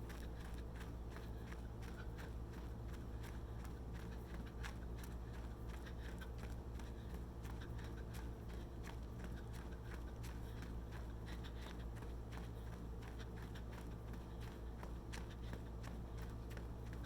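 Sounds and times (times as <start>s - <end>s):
running footsteps crunching: 0.0s - 17.0s.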